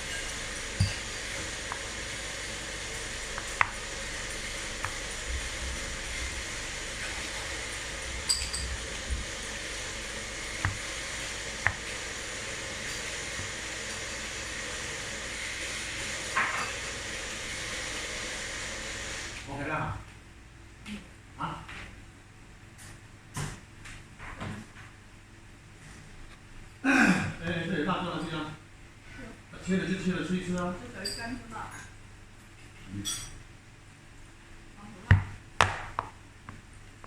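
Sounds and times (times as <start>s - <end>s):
playdough stirred in a bowl: 0.0s - 14.6s
steady hiss: 0.0s - 19.8s.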